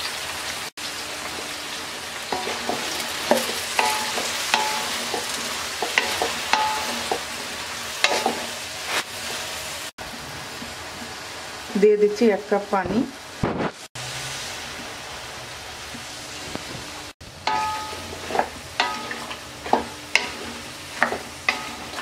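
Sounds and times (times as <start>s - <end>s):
food sizzling in hot oil: 0.0s - 22.0s
spatula knocking and scraping pan: 2.3s - 8.6s, 17.5s - 22.0s.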